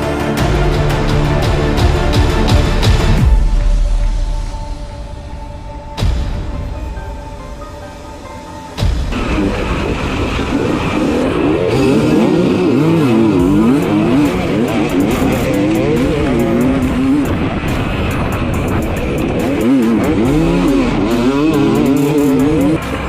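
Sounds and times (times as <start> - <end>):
music: 0.0 - 23.0
dirt bike engine revving: 9.1 - 23.0.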